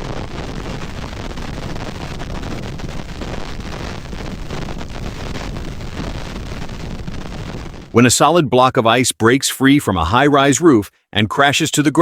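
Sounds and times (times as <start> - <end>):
hiss of blown snow: 0.0 - 7.9
wind blowing across microphone: 0.0 - 8.0.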